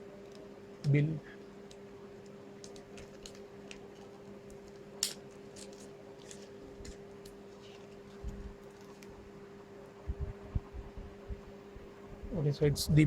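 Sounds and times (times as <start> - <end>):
steady low hum: 0.0 - 13.0
paper rustling and clicks: 2.2 - 9.2.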